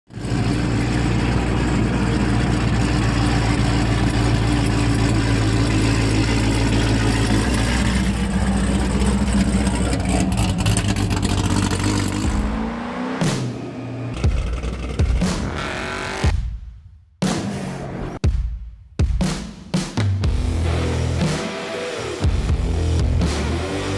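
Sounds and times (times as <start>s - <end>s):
car engine running: 0.1s - 16.4s.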